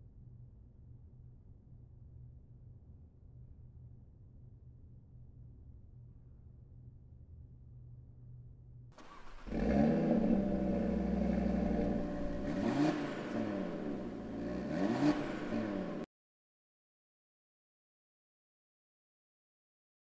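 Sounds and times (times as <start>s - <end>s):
engine idling: 9.0s - 16.0s
car engine starting: 9.0s - 16.1s
engine revving: 9.0s - 16.1s.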